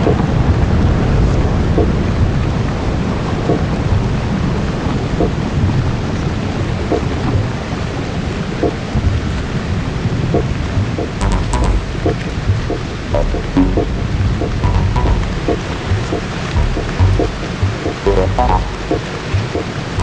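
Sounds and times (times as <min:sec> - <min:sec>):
rumbling electronic noise wash: 0:11.1 - 0:19.5.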